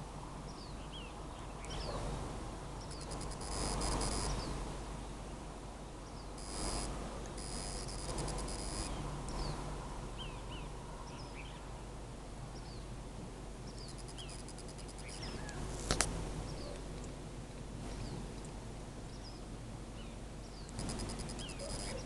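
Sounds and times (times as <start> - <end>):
steady low background noise: 0.0 - 22.0
rapid high ticking trill: 2.9 - 4.4, 6.4 - 9.0, 13.8 - 15.2, 20.7 - 22.0
short bird chirps: 20.6 - 22.0
sharp click: 20.7 - 22.0.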